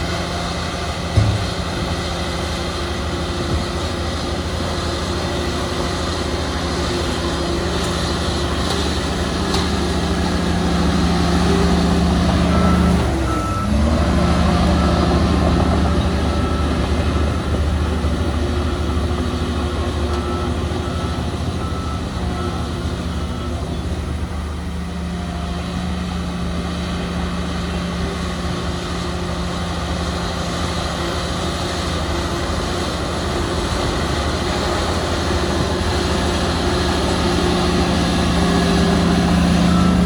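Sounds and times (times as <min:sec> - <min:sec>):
diesel machine engine running: 0:00.0 - 0:40.0
reversing alarm beeping: 0:10.3 - 0:25.0, 0:34.0 - 0:40.0.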